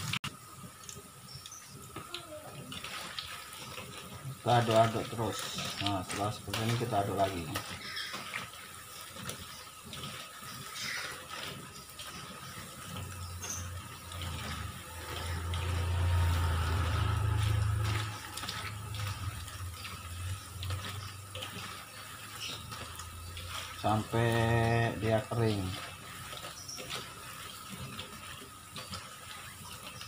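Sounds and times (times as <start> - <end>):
tofu sizzling in hot oil: 0.0 - 30.0
wooden spatula scraping pan: 3.6 - 30.0
low hum: 14.0 - 21.3.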